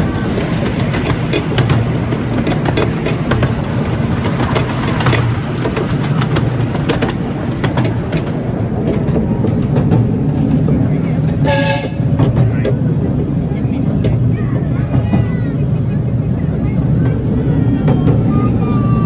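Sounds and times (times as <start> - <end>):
train wheels rumbling on track: 0.0 - 19.0
irregular clicks and knocks: 0.3 - 10.9.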